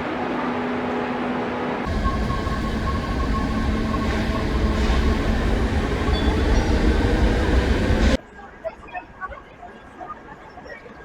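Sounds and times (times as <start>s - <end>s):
electric train rumbling: 0.0s - 8.2s
steady high tone: 1.9s - 8.2s.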